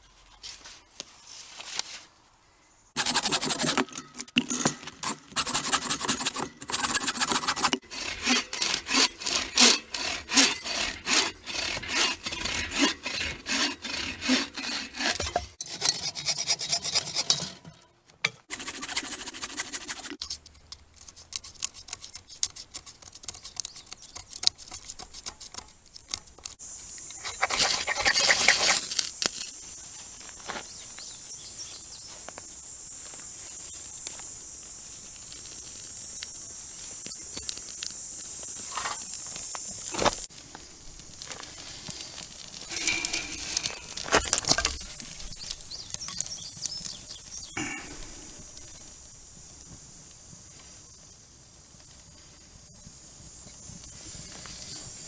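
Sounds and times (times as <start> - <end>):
hand saw cutting branch: 3.0 - 20.2.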